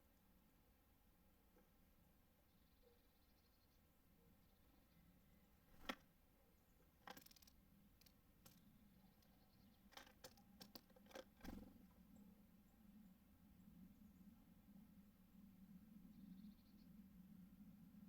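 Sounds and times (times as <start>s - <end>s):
birds tapping at a feeder: 6.8s - 12.0s.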